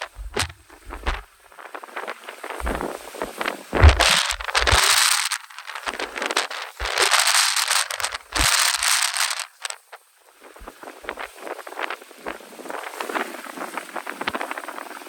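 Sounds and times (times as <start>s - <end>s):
wind thumping microphone: 0.0s - 1.4s, 2.6s - 5.0s.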